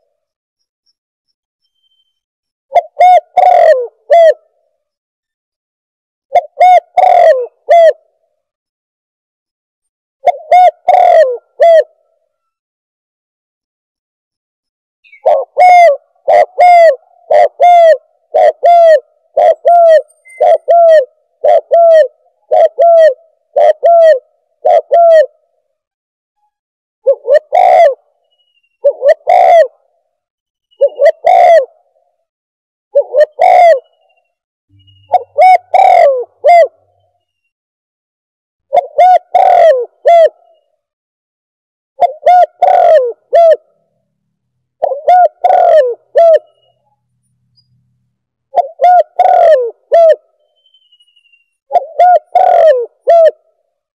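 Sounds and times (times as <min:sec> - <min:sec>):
dove cooing: 0:02.7 - 0:04.6, 0:06.3 - 0:08.1, 0:10.2 - 0:12.6, 0:15.1 - 0:25.5, 0:27.0 - 0:28.2, 0:28.8 - 0:30.0, 0:30.8 - 0:32.0, 0:33.0 - 0:34.0, 0:35.1 - 0:36.9, 0:38.7 - 0:40.7, 0:42.0 - 0:43.8, 0:44.8 - 0:46.7, 0:48.5 - 0:50.3, 0:51.7 - 0:53.4.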